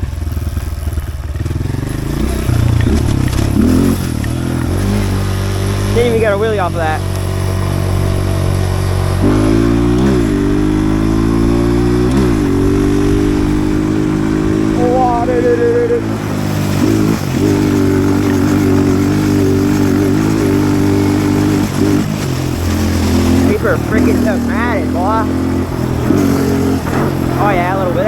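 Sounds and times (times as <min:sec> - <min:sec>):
pit bike engine revving: 0:00.0 - 0:28.0.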